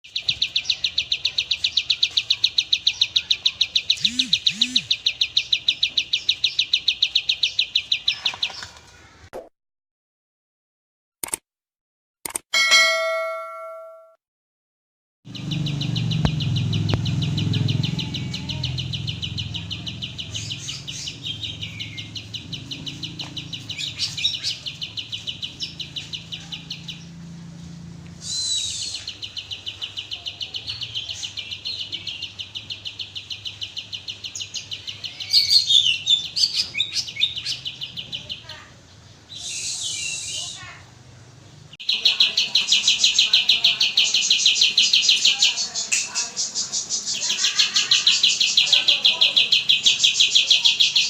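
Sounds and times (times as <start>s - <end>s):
songbird rattling trill: 3.8s - 8.1s
sharp chirps and whistled glides: 4.0s - 5.0s.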